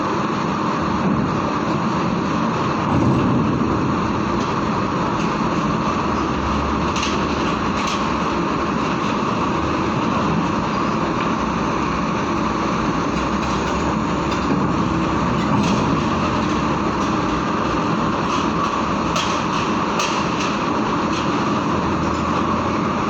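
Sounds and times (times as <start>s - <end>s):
truck diesel engines running: 0.0s - 23.0s.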